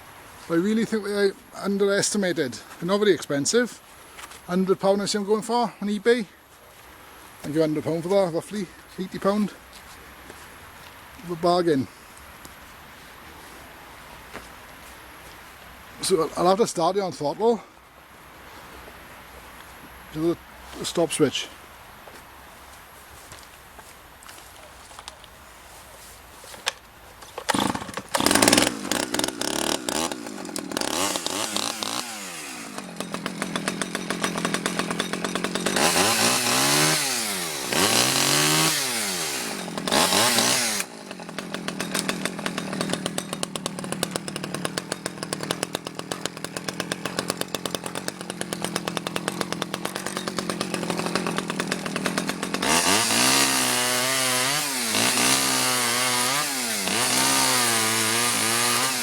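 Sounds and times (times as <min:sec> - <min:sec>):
chainsaw pull-start: 0:26.5 - 0:59.0
chainsaw revving: 0:27.4 - 0:59.0.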